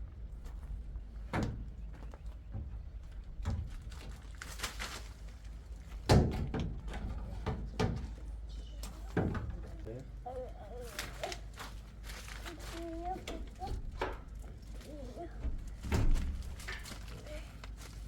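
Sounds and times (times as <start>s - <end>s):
scraping rustle: 3.4s - 6.0s, 10.7s - 18.0s.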